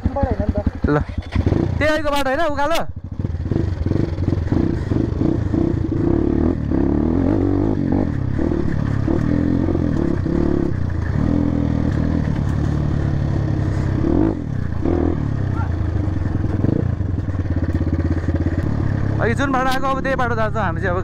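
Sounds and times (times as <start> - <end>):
dirt bike engine revving: 0.0 - 21.0
bike rattling over rough ground: 8.0 - 20.2.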